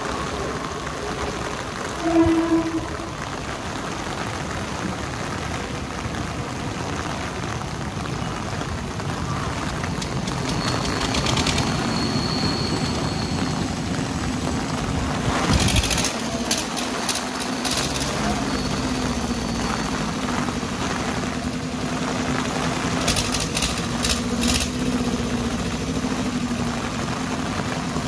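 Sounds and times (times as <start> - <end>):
train rumbling on tracks: 0.0 - 5.2, 9.3 - 28.0
heavy rain hiss: 0.0 - 28.0
rapid clicking: 10.0 - 11.9, 15.5 - 18.2, 23.0 - 24.8.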